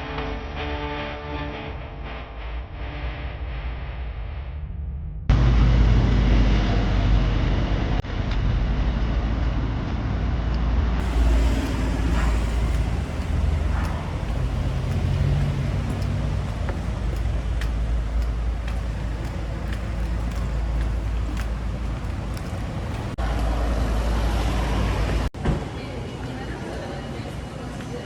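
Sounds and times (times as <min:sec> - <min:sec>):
road traffic rumble: 0:11.0 - 0:25.4.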